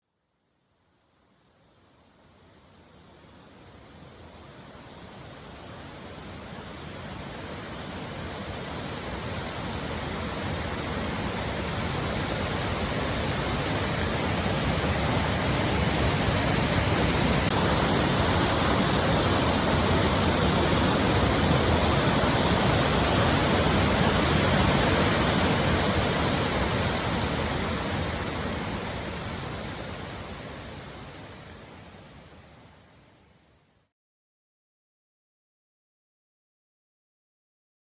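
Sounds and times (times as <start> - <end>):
waterfall roar: 3.5 - 32.9.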